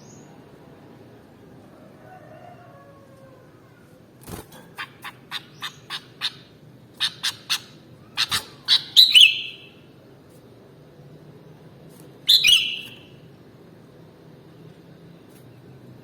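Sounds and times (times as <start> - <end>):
bulbul chirping: 4.8 - 9.8, 12.3 - 13.2.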